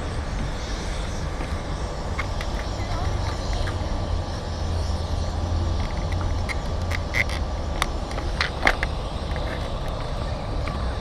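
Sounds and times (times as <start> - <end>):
steady low rumble: 0.0 - 11.0
sharp clicks and ticks: 5.7 - 10.0.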